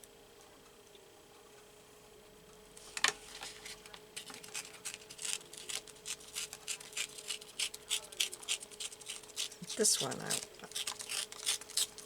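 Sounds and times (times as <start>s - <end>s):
faint steady hum: 0.0s - 12.0s
paper rustling: 2.8s - 7.2s.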